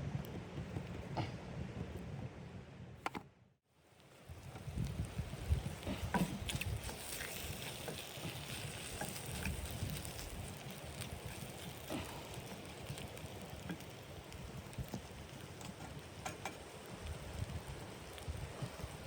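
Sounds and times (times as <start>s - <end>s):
crackles and clicks: 3.9s - 19.0s.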